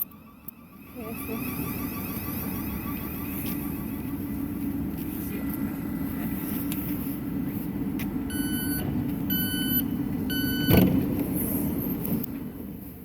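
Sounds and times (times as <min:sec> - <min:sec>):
train humming: 0:00.0 - 0:13.0
train door warning beeps: 0:08.2 - 0:11.0.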